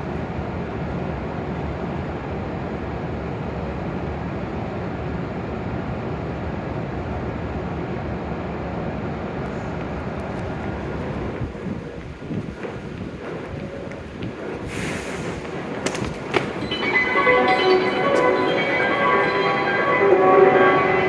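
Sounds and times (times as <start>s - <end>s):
train equipment humming: 9.4s - 21.0s.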